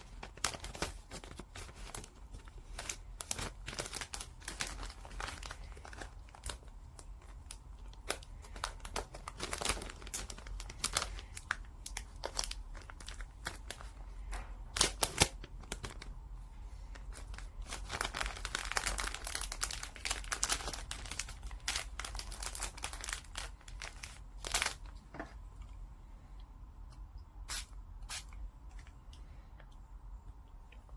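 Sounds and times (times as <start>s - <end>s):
thin material crinkling and tearing: 0.0s - 16.2s, 16.9s - 25.0s.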